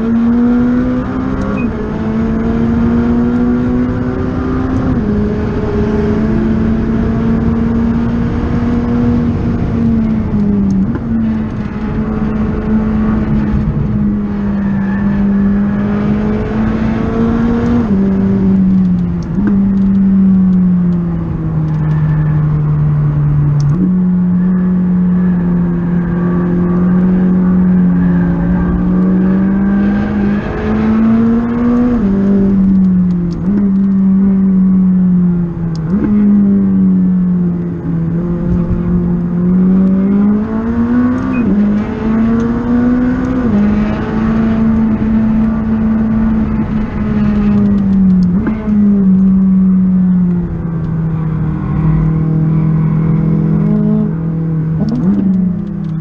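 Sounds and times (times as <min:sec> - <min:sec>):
car engine accelerating: 0:00.0 - 0:56.0
engine gear changes: 0:37.6 - 0:56.0.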